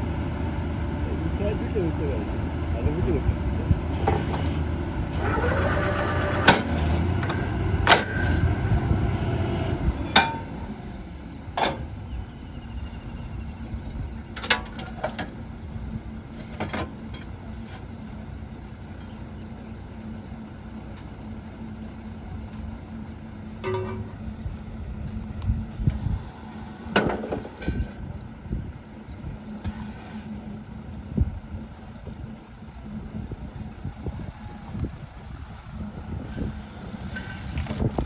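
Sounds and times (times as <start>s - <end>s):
drilling rig running: 0.0s - 38.0s
metallic clanks of steel: 23.6s - 24.2s.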